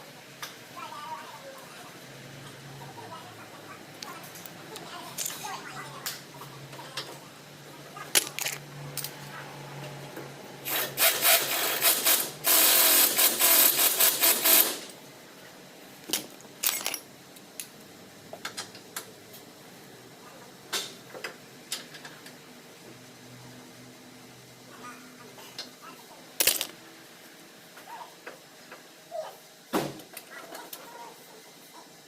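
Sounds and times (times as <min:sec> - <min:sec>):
rapid mechanical rattling: 0:10.7 - 0:14.9.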